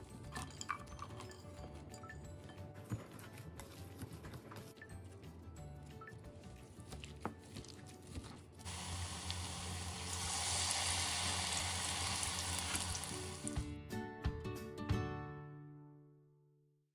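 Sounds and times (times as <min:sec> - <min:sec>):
fritters sizzling in oil: 0:08.6 - 0:13.6.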